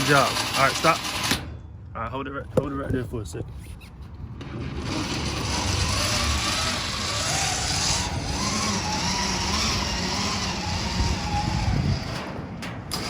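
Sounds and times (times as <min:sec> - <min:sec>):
electric winch motor whirring: 0:00.0 - 0:01.4, 0:04.4 - 0:13.0.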